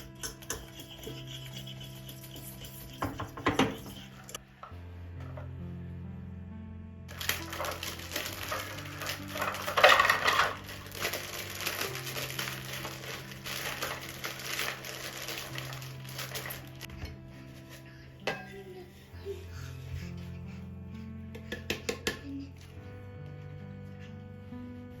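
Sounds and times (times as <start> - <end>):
soft background music: 0.0 - 25.0
brittle material crunching: 7.1 - 16.9.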